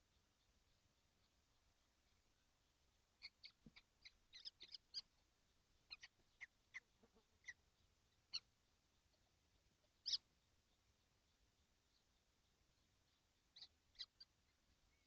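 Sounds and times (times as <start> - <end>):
kestrel nestlings calling: 3.2 - 5.1, 5.9 - 7.6, 10.0 - 10.3, 13.5 - 14.3.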